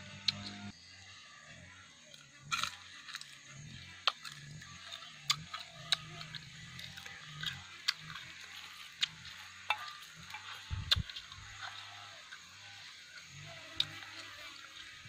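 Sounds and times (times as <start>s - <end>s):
low hum: 0.0s - 15.0s
crunchy chewing clicks: 2.1s - 15.0s.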